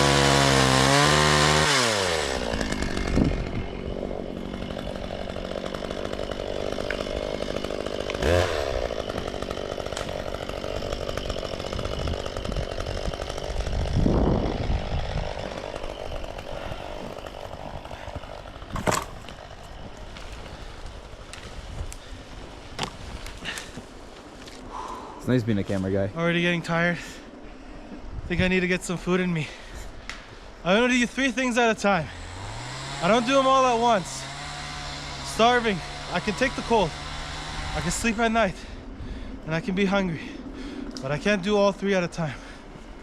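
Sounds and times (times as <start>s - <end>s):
chainsaw engine revving: 0.0s - 22.1s, 30.7s - 38.8s.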